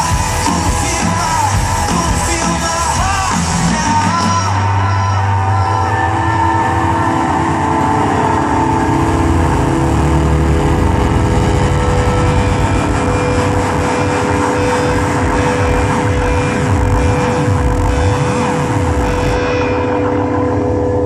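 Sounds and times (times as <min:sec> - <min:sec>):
loud live rock band: 0:00.0 - 0:21.0.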